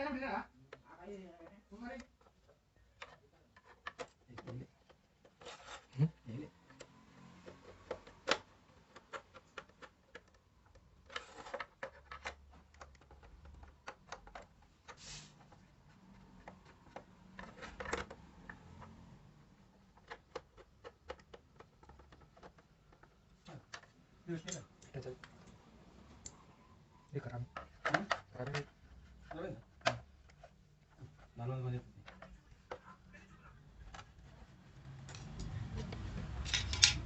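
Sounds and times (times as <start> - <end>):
clicks and taps of tools: 19.8 - 25.6, 35.0 - 37.0.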